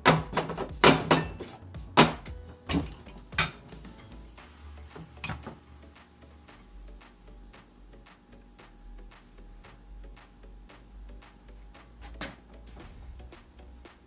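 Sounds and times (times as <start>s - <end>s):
metal parts clanking: 0.0s - 4.2s.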